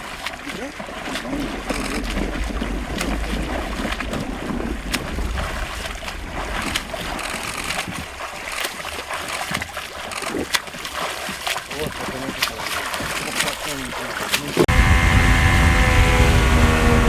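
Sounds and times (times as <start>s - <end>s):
wind buffeting microphone: 0.0s - 10.5s, 14.6s - 17.0s
water noise: 0.0s - 17.0s.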